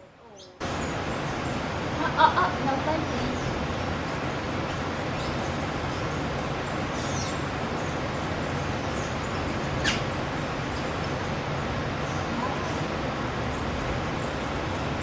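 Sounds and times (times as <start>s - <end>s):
background traffic noise: 0.0s - 15.0s
high bird chirps: 8.9s - 11.1s.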